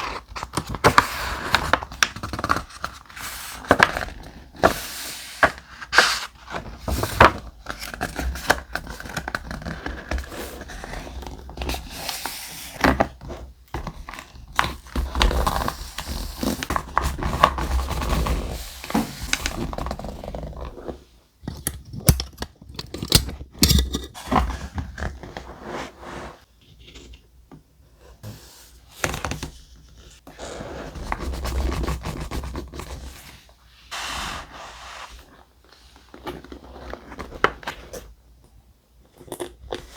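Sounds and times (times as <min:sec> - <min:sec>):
paper scraping and rustling: 0:24.2 - 0:27.0.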